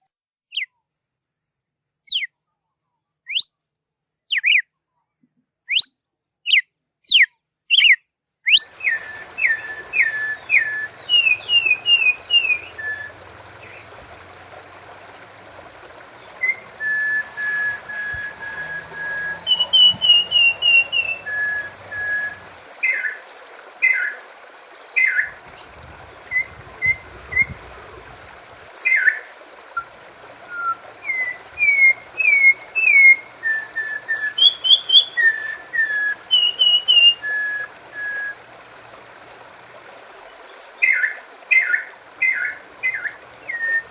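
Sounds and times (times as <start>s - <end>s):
songbirds whistling: 2.1s - 2.4s, 3.3s - 3.6s, 4.3s - 4.6s, 5.7s - 23.2s, 25.0s - 27.9s, 28.8s - 39.0s, 40.5s - 43.9s
background hiss: 8.6s - 43.9s.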